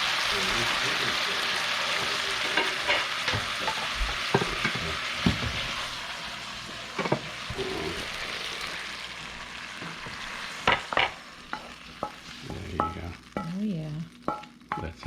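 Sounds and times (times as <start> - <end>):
clams sizzling in a hot pan: 0.0 - 15.0
utensil scraping a pan: 1.5 - 6.0.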